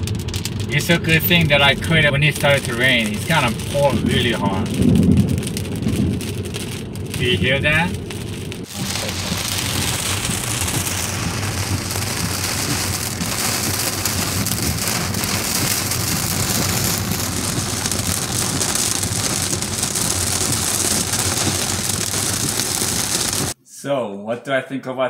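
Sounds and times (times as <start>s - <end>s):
heavy rain on car roof: 0.0s - 23.6s.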